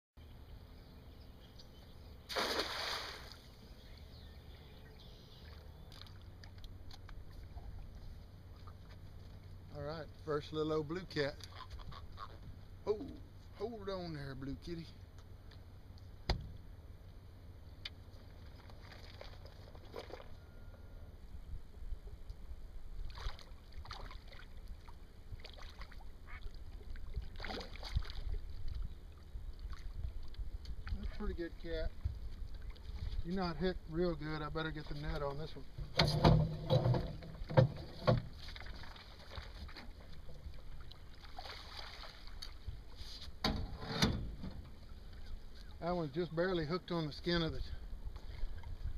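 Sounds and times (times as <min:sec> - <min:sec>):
low rumble of wind: 0:00.2 - 0:48.9
fish splashing in water: 0:02.3 - 0:03.5, 0:18.3 - 0:20.4, 0:23.0 - 0:28.6, 0:38.3 - 0:42.7.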